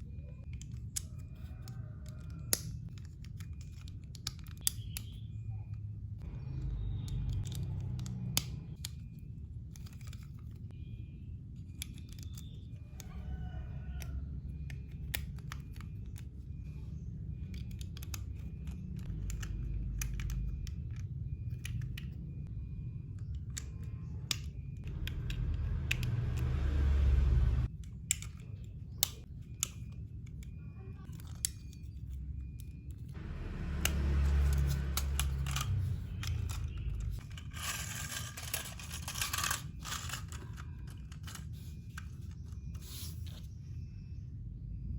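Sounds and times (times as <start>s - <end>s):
low hum: 18.3s - 27.7s, 32.2s - 44.9s
plastic bricks clicking: 34.5s - 42.8s.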